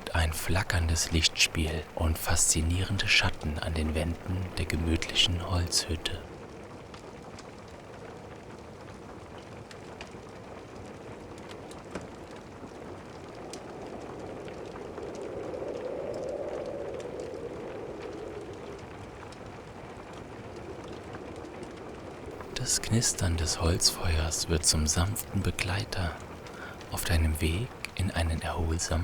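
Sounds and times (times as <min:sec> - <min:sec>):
rain hiss: 0:00.0 - 0:06.3, 0:13.4 - 0:21.0, 0:22.3 - 0:29.0
wood fire crackling: 0:00.0 - 0:06.3, 0:21.7 - 0:29.0.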